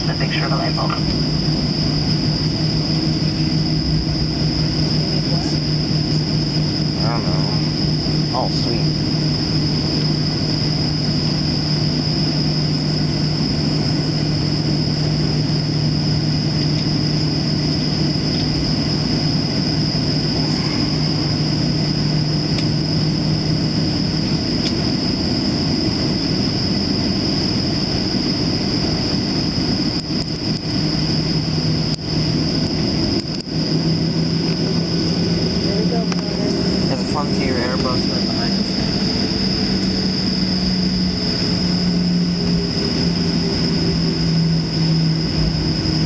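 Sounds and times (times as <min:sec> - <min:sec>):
jet engines running in cabin: 0:00.0 - 0:46.0.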